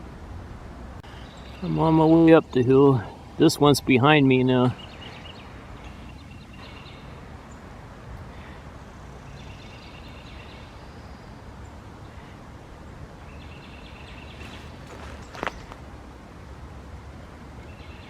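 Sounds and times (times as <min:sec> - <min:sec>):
low outdoor rumble: 0:00.0 - 0:18.0
footsteps through leaf litter: 0:14.4 - 0:15.8.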